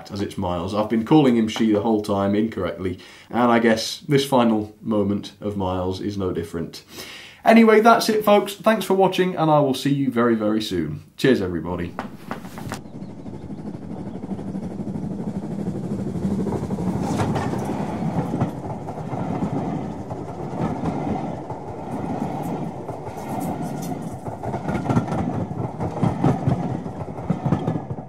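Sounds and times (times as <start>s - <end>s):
train carriages rumbling past: 11.6s - 28.0s
wheels clicking over rail joints: 11.8s - 28.0s.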